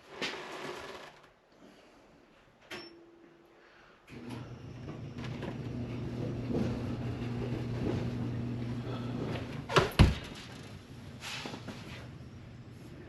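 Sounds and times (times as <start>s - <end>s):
dryer motor and drum humming: 4.1s - 13.0s.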